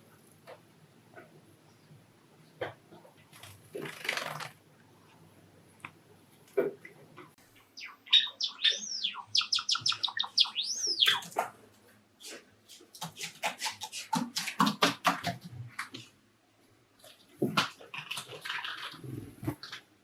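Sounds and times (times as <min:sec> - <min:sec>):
sparrow singing clicks and whistles: 0:07.8 - 0:11.3.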